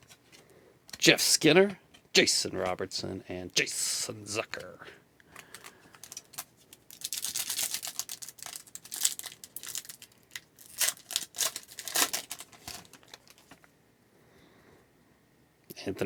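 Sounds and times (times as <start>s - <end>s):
papery rustling: 5.4s - 13.6s
plastic wrapper tearing and crinkling: 5.4s - 13.6s.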